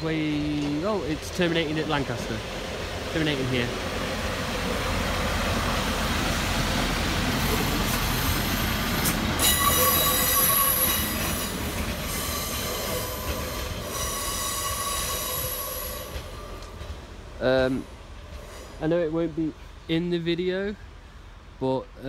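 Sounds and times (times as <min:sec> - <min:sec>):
train rumbling: 0:00.0 - 0:22.0
wheel and brake squeal: 0:09.4 - 0:11.5, 0:12.1 - 0:16.2.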